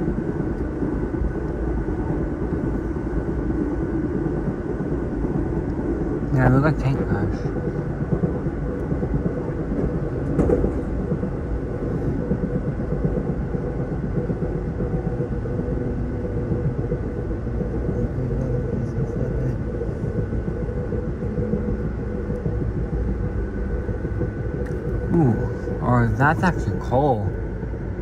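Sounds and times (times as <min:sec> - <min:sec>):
faint steady whine: 0:00.0 - 0:28.0
moving passenger train rumble: 0:00.0 - 0:28.0
passing freight train: 0:00.0 - 0:28.0.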